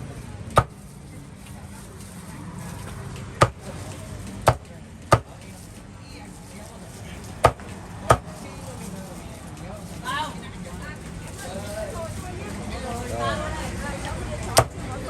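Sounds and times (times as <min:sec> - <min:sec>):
meat being chopped: 0:00.4 - 0:00.9, 0:02.8 - 0:05.6, 0:07.4 - 0:08.4, 0:14.5 - 0:14.8.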